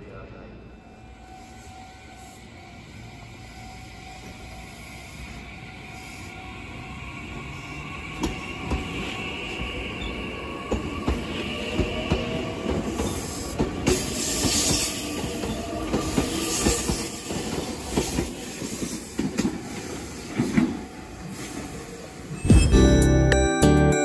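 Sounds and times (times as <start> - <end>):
music: 22.4 - 24.0.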